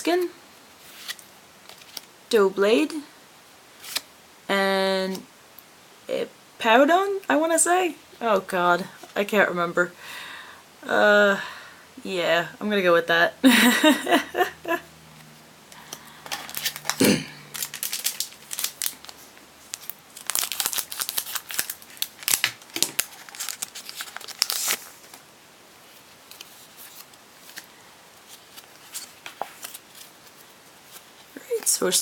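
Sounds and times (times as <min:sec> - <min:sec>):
cards being handled: 0:15.8 - 0:25.2, 0:28.3 - 0:31.3
foil pack crinkling: 0:15.8 - 0:25.2.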